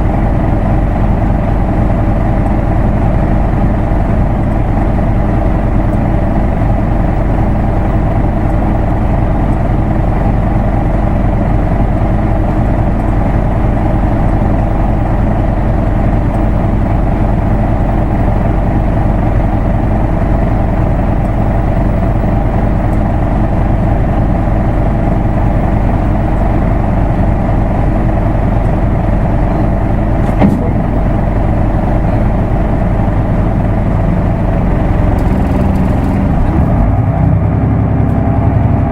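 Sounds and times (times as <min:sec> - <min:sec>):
bus diesel engine running: 0:00.0 - 0:38.9
short knock: 0:30.2 - 0:31.0.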